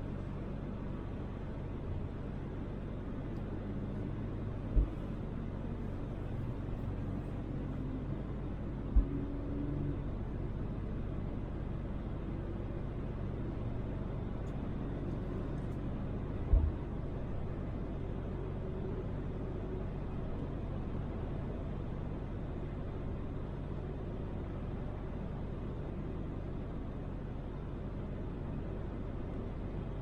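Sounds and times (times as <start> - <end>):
road and engine rumble: 0.0 - 30.0
low thumps: 4.7 - 5.0.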